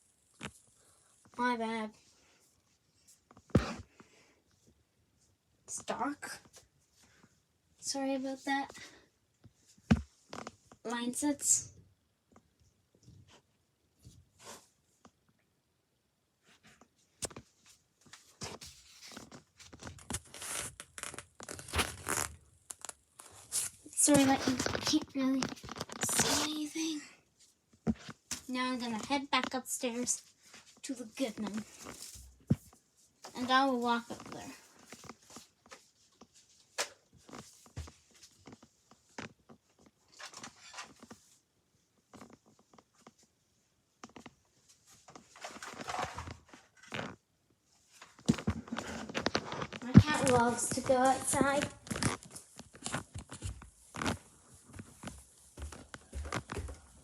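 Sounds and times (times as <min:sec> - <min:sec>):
rustling and scraping handling noise: 0:13.0 - 0:15.1, 0:16.4 - 0:57.0
footsteps walking up stairs: 0:52.9 - 0:57.0.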